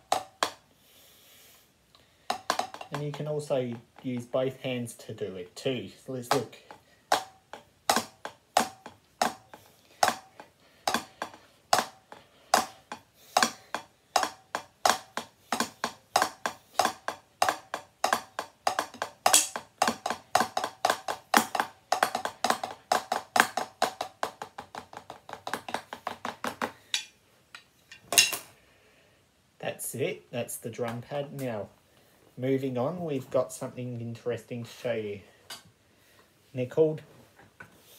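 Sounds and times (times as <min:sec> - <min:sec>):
drumsticks on practice pad: 0:00.0 - 0:00.6, 0:02.3 - 0:04.4, 0:06.1 - 0:28.5.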